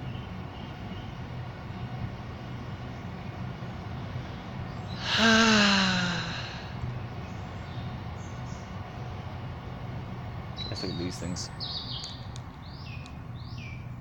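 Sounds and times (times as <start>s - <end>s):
low background hum: 0.0s - 14.0s
man sighing: 5.0s - 6.8s.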